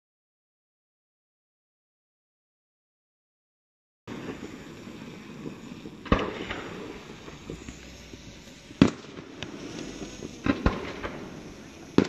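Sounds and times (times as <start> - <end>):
firework bangs: 4.1 - 12.0
firework crackling: 4.1 - 12.0.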